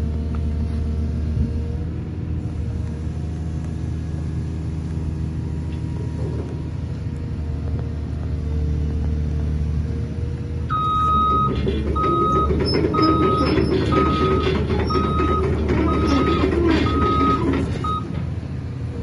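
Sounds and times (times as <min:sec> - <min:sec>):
diesel engine running: 0:00.0 - 0:19.0
excavator travel alarm beeping: 0:10.7 - 0:18.2.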